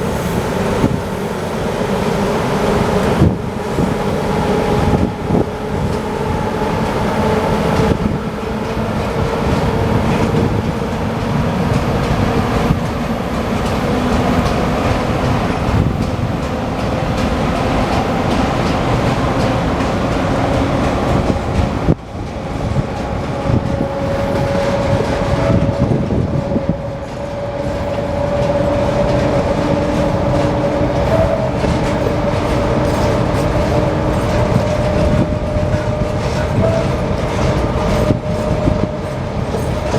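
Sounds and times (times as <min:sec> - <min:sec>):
train wheels clattering on rails: 0:00.0 - 0:39.9.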